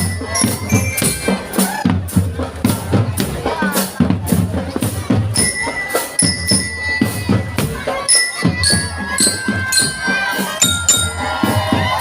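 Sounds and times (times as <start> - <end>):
jingling percussion: 0.0 - 12.0
marching drums beating: 0.0 - 12.0
high held melody: 5.4 - 12.0.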